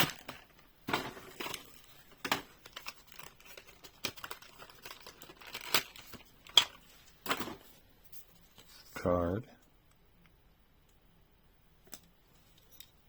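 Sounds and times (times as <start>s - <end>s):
plastic packaging crinkling: 0.0s - 7.4s
sharp plastic crackles: 0.0s - 7.6s.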